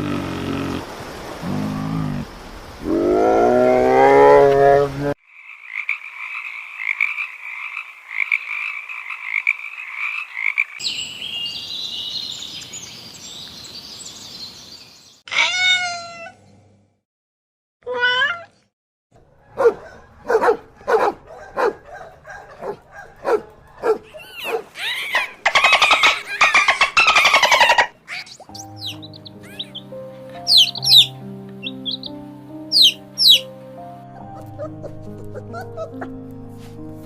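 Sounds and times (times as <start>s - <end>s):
frog croaking: 5.2s - 10.8s, 24.8s - 33.5s
drawn-out pitch-bending calls: 23.8s - 33.5s
high chirps: 24.3s - 33.5s
short repeated animal calls: 30.4s - 32.1s, 32.7s - 33.4s.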